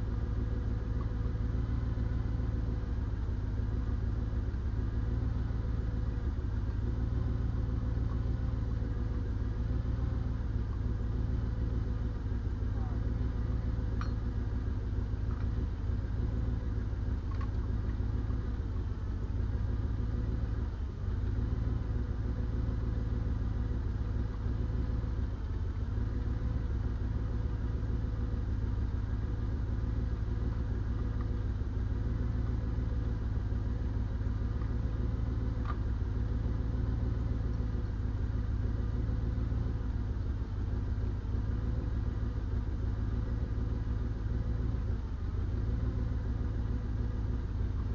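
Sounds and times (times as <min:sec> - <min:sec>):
diesel engine idling: 0:00.0 - 0:47.9.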